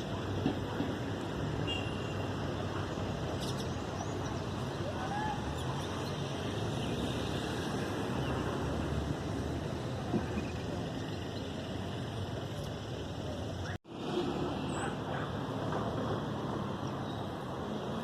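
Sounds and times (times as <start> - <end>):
outdoor rumble and hiss: 0.0 - 18.0.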